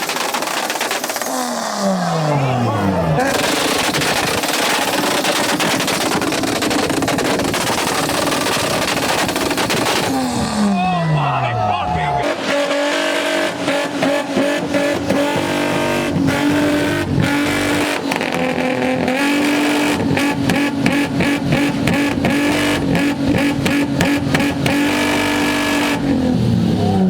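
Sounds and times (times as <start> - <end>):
exhaust pops and bangs: 0.0 - 1.5, 3.2 - 10.8, 13.4 - 25.4
car engine at high revs: 0.0 - 27.0.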